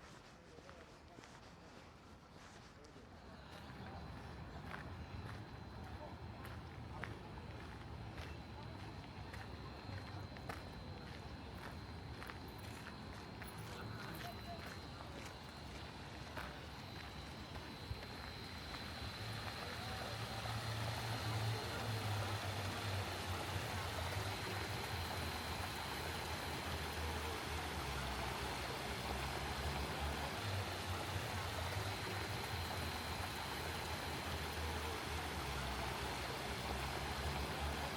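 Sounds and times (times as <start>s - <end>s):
fountain water splashing: 13.4s - 37.9s.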